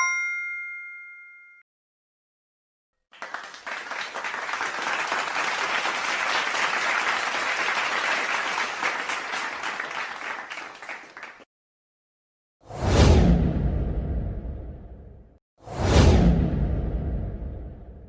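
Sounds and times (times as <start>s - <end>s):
crowd applauding: 3.1s - 11.5s.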